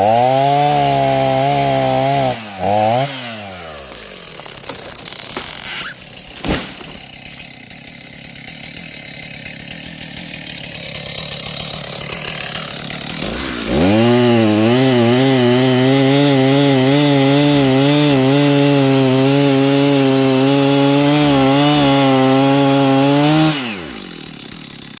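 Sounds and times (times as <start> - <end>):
chainsaw revving: 0.0 - 25.0
sharp thump: 5.3 - 7.1.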